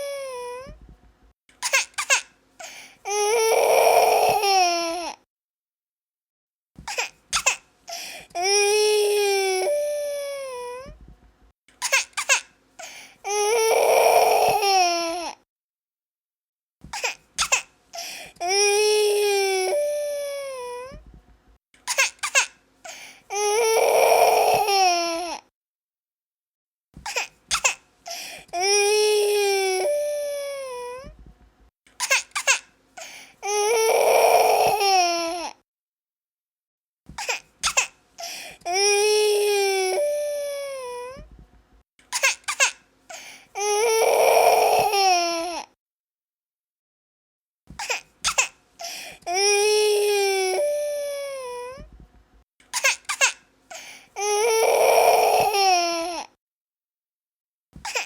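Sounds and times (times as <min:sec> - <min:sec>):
baby crying: 0:00.0 - 0:00.8, 0:03.0 - 0:05.2, 0:06.9 - 0:10.9, 0:13.2 - 0:15.4, 0:17.0 - 0:21.0, 0:23.3 - 0:25.5, 0:27.1 - 0:31.1, 0:32.1 - 0:35.6, 0:37.2 - 0:41.3, 0:42.2 - 0:45.8, 0:47.8 - 0:51.9, 0:52.8 - 0:56.4
gasping sobs: 0:28.1 - 0:29.6, 0:48.8 - 0:51.8.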